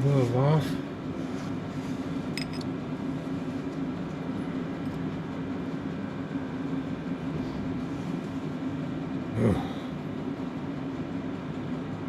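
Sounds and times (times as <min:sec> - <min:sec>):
low mechanical hum: 0:00.0 - 0:12.0
ringing metal clink: 0:02.4 - 0:02.6.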